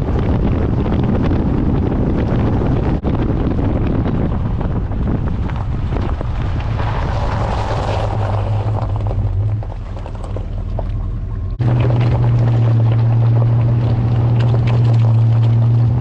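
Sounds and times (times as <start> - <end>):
road and wind noise: 0.0 - 16.0
vehicle engine droning: 0.0 - 16.0.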